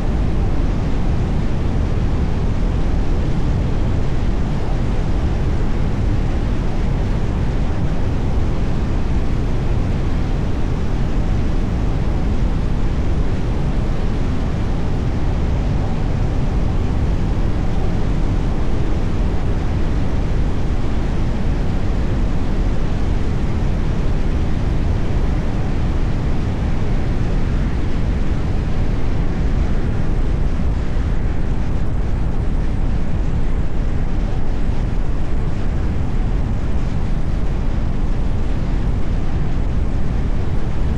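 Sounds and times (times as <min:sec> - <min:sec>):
car road and wind noise: 0:00.0 - 0:40.9.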